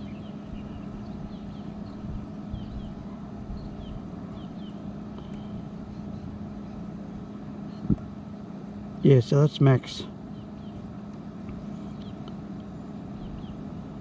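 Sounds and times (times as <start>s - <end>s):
faint bird chirps: 0.0s - 6.4s
fridge compressor humming: 0.0s - 14.0s.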